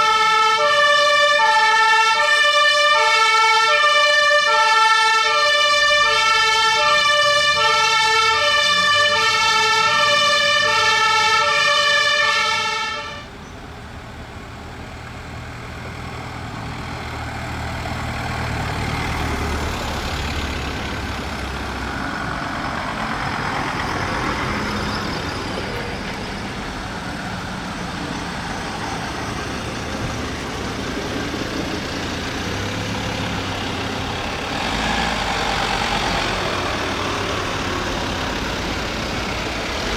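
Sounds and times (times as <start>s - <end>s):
two-tone fire engine siren: 0.0s - 13.4s, 22.4s - 39.9s
truck engine running: 5.0s - 39.9s.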